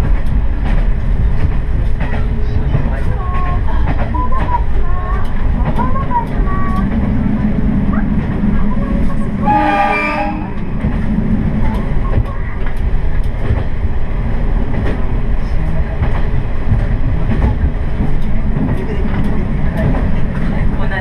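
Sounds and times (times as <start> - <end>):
diesel railcar rumbling: 0.0 - 21.0
train horn: 9.4 - 10.7.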